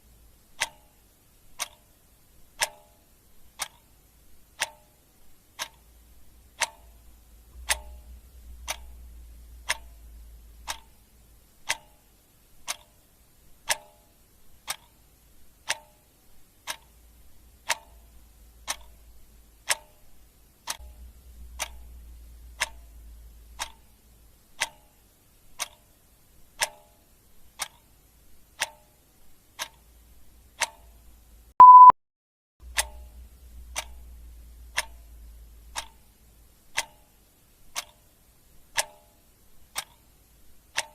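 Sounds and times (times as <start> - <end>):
clock ticking: 0.4 - 31.9, 32.6 - 40.9
short high beep: 31.6 - 32.0.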